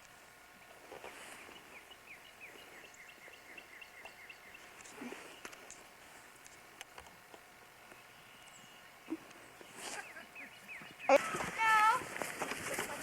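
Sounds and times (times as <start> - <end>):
bird chirping: 1.4 - 5.5, 7.9 - 11.4.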